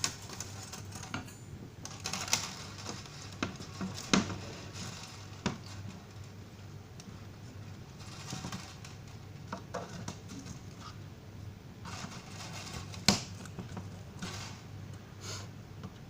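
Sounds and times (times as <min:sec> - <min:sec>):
steady low hum: 0:00.0 - 0:16.0
handling scrapes and rustles: 0:01.9 - 0:06.4, 0:07.4 - 0:11.0, 0:11.8 - 0:15.5.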